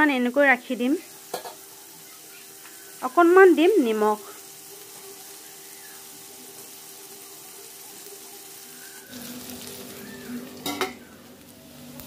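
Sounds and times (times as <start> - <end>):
food sizzling in oil: 0.0 - 12.0
metal lid clinking on pan: 1.3 - 1.6, 10.6 - 11.0.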